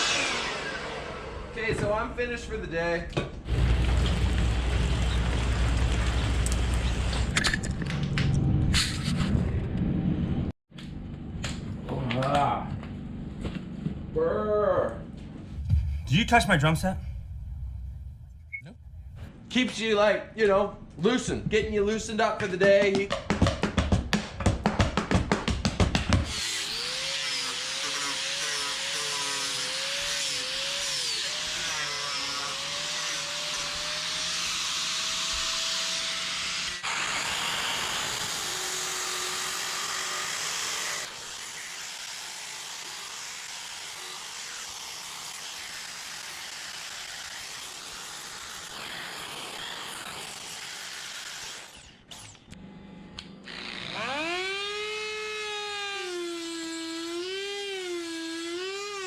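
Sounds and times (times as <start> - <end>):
power tools carving wood: 0.0 - 1.8, 3.5 - 7.3, 26.2 - 52.6, 53.4 - 59.0.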